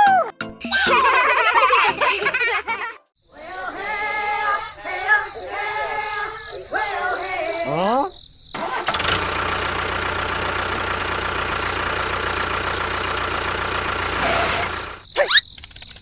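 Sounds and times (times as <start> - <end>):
small engine idling: 8.6 - 15.1.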